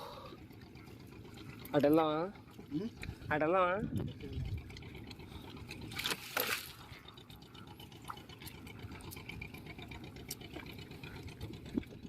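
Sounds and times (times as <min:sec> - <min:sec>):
water splashing: 0:04.5 - 0:11.9.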